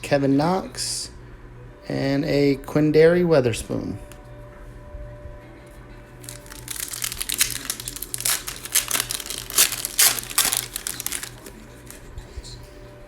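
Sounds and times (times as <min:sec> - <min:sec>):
cellophane wrapper crinkling: 0:06.2 - 0:12.0.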